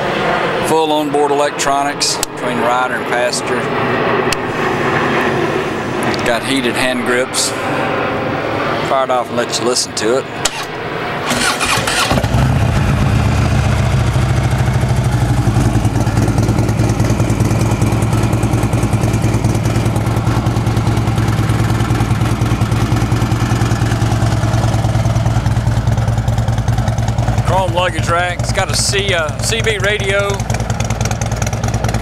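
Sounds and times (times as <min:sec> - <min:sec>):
motorcycle engine starting: 0:10.4 - 0:32.0
motorcycle engine idling: 0:11.3 - 0:32.0.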